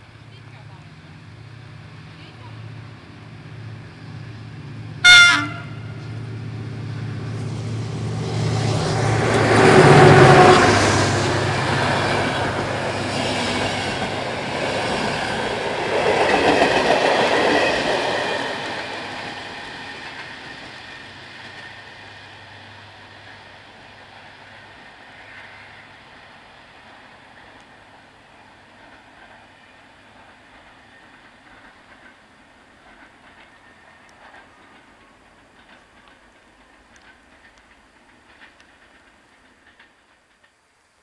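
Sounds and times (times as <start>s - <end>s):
passenger train passing: 0.0s - 40.5s
locomotive horn blast: 5.0s - 6.0s.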